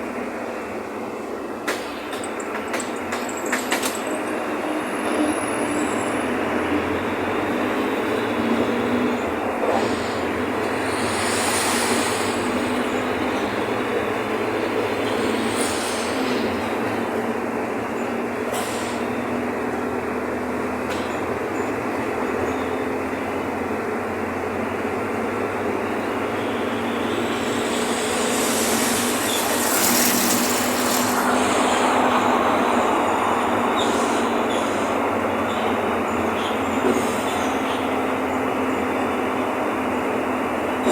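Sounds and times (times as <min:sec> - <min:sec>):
bus diesel engine drone: 0:00.0 - 0:40.9.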